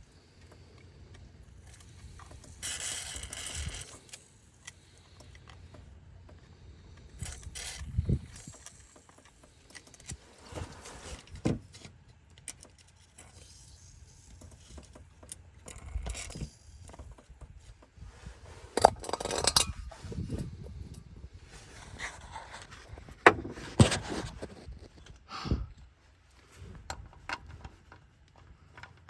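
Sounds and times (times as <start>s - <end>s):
metal parts clattering: 18.7s - 20.0s
metal tools clinking: 18.8s - 19.9s.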